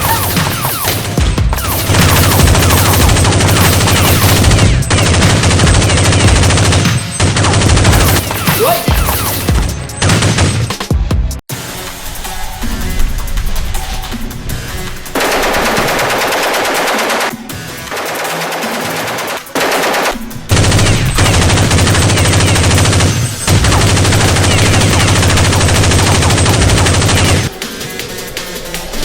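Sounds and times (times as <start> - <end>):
automatic gunfire bursts: 0.0 - 9.6, 17.9 - 27.5.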